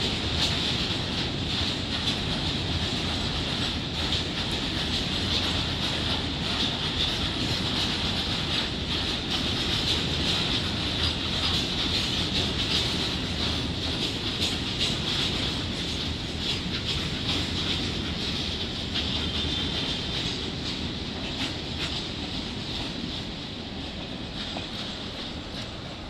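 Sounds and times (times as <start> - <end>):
train wheels rumbling on rails: 0.0 - 26.0
faint clacks: 24.0 - 26.0.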